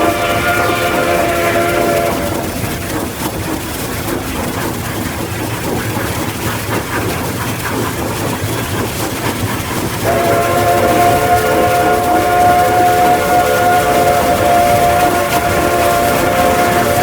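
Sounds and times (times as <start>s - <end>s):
locomotive horn chord: 0.0s - 3.0s, 10.0s - 17.0s
locomotive rumbling and clattering: 0.0s - 17.0s.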